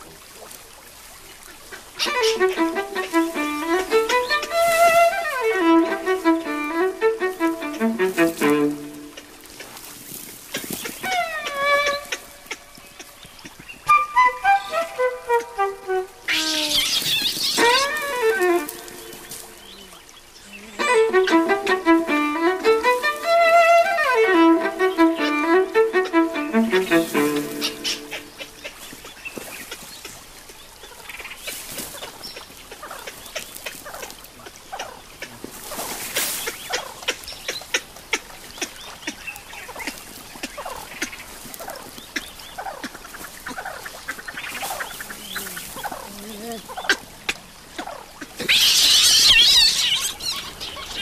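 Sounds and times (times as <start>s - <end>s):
animal calls and squeals: 2.0s - 3.3s, 13.9s - 21.6s, 40.6s - 51.0s
violin playing: 2.0s - 10.2s, 11.0s - 12.9s, 13.9s - 19.8s, 20.7s - 28.6s.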